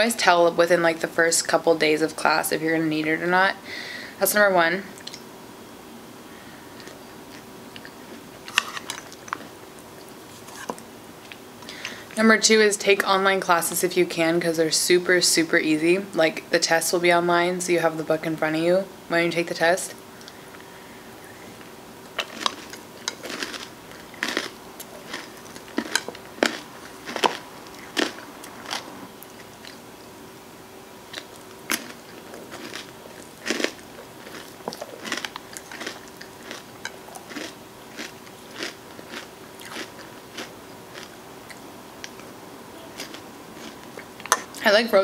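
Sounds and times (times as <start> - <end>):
crunching and chewing: 6.7 - 12.0, 20.2 - 29.9, 31.1 - 44.6.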